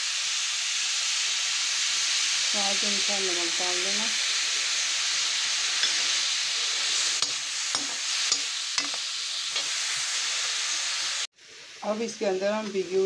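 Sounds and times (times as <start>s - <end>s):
food sizzling in oil: 0.0s - 13.0s
metal spatula scraping pan: 5.6s - 9.8s.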